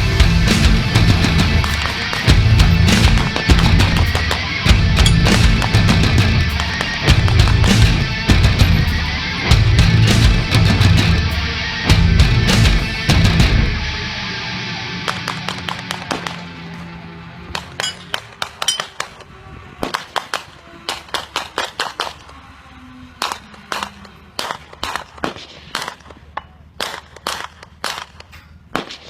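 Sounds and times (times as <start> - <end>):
background music: 0.0 - 16.7
gunshots: 0.4 - 11.3, 23.2 - 29.0.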